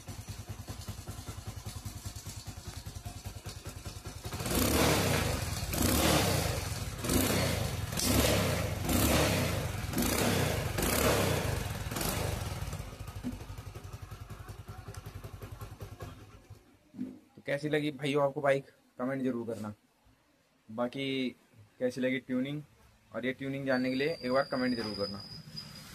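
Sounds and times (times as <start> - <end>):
motorcycle engine idling and revving: 0.0 - 16.7.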